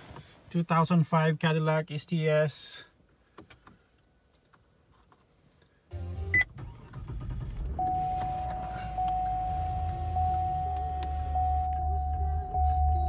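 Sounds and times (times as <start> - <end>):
car engine starting and idling: 5.9 - 13.0.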